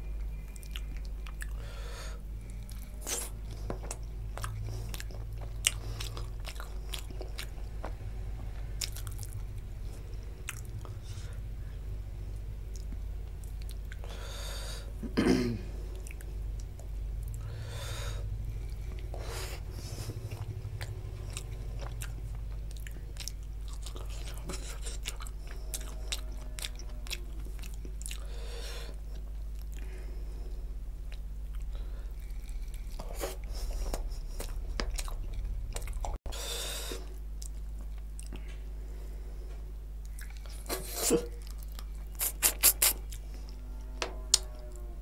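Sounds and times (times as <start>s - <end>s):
wet chewing and lip smacking: 0.2s - 1.6s, 2.4s - 8.0s, 8.7s - 11.3s, 20.0s - 28.3s, 31.1s - 36.2s, 40.0s - 43.3s.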